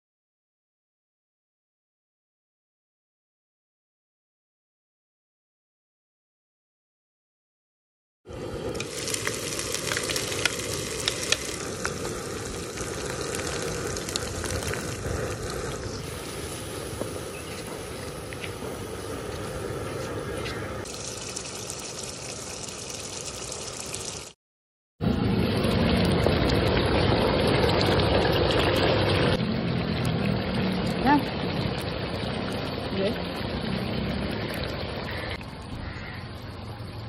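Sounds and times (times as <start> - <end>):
paste frying in hot oil: 8.3 - 24.4, 25.6 - 35.4.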